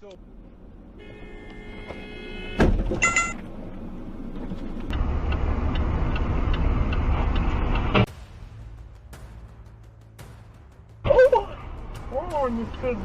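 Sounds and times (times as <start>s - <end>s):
road and engine rumble: 0.0s - 13.0s.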